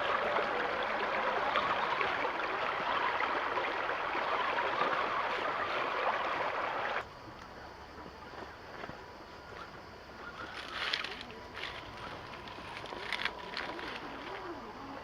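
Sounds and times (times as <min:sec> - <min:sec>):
stream water rushing: 0:00.0 - 0:07.1, 0:10.6 - 0:15.0.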